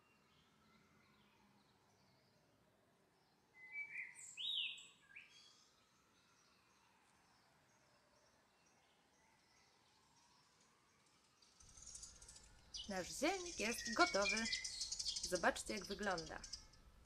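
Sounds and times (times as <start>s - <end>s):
bird chirping and whistling: 12.9s - 16.5s.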